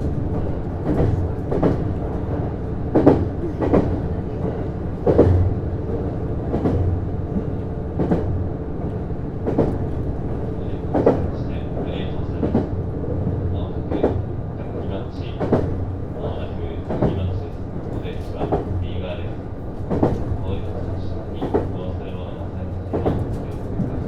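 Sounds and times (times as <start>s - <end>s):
train running gear hum: 0.0s - 24.0s.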